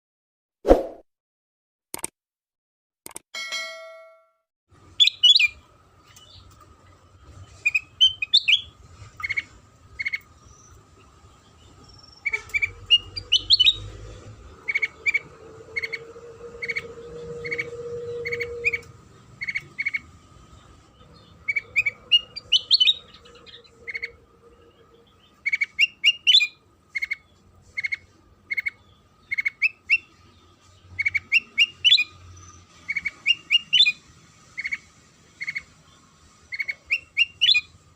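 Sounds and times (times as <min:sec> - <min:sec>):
songbird chirping and trilling: 0:04.8 - 0:37.9.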